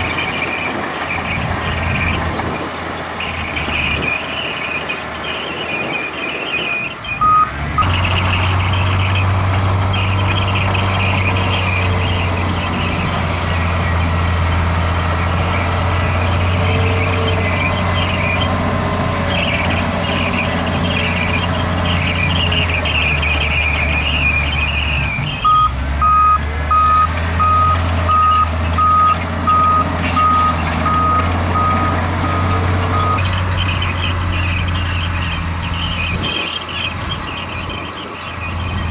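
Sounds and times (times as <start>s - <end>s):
diesel engine running under load: 0.0s - 38.9s
high metallic squeal and clatter: 0.0s - 38.9s
backup alarm beeping: 25.4s - 33.2s.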